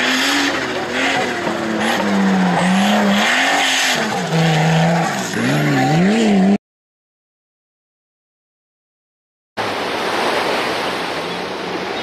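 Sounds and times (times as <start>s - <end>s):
race vehicle engine revving: 0.0s - 6.6s
tyre and terrain noise: 0.0s - 6.6s.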